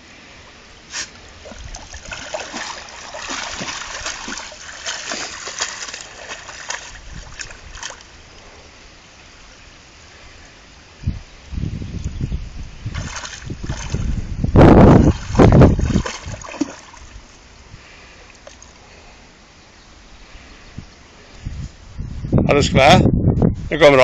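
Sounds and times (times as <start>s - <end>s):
stream rushing: 0.0s - 10.9s, 12.8s - 17.6s
splashing through stream water: 0.9s - 8.4s, 12.8s - 17.4s.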